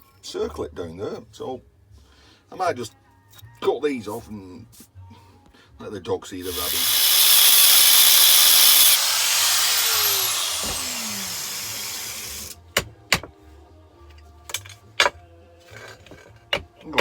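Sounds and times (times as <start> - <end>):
angle grinder cutting metal: 6.4 - 12.6.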